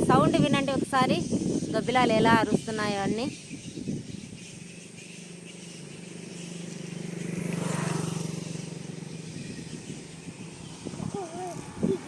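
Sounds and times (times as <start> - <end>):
vehicle passing by: 4.0 - 12.0.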